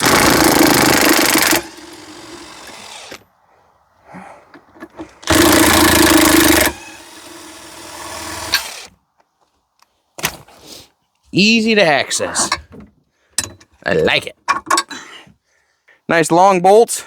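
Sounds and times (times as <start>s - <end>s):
power drill backing out bolt: 0.0s - 3.2s, 5.0s - 8.9s.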